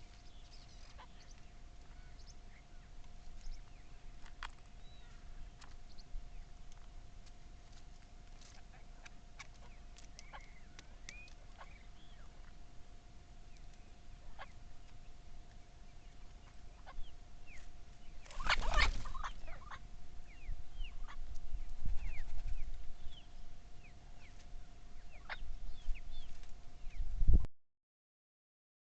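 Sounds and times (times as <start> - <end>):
chicks peeping: 0.0 - 6.9, 8.2 - 12.6, 13.5 - 27.2.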